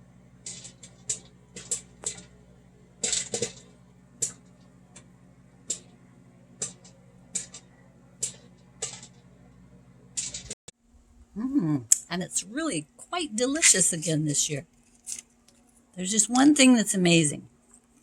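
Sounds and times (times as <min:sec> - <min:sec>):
popcorn popping: 0:00.0 - 0:10.6
microwave oven humming: 0:00.0 - 0:17.8.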